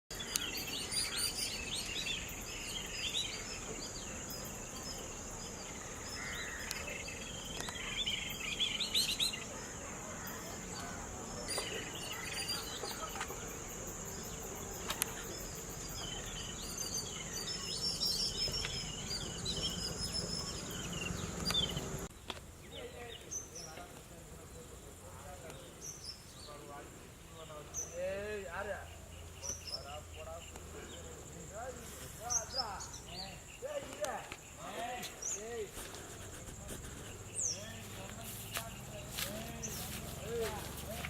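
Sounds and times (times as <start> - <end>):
birds chirping: 0.1 - 41.0.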